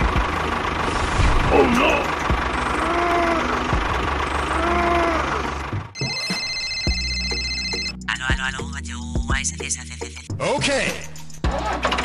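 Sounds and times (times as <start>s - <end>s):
tractor engine running: 0.0s - 8.4s
music with steady beat: 8.1s - 9.6s.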